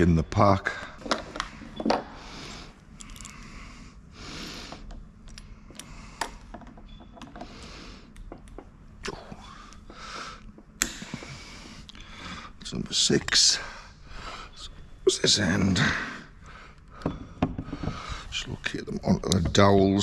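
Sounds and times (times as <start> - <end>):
light clicks and knocks of parts: 2.8 - 3.5, 4.7 - 8.8.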